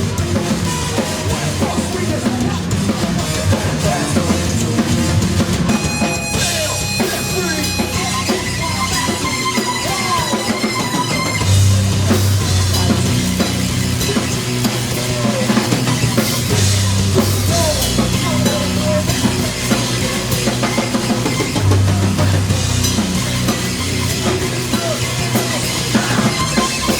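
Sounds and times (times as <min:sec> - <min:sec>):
bass line: 0:00.0 - 0:26.9
drum kit hits: 0:00.0 - 0:26.9
rock band playing: 0:00.0 - 0:26.9.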